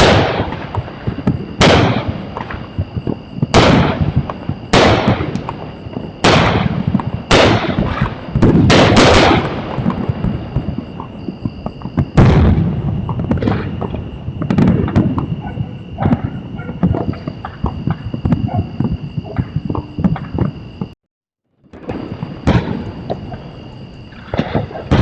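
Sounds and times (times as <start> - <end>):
fireworks crackles: 0.0 - 20.8, 21.6 - 25.0
fireworks bangs: 0.0 - 21.0, 21.6 - 25.0.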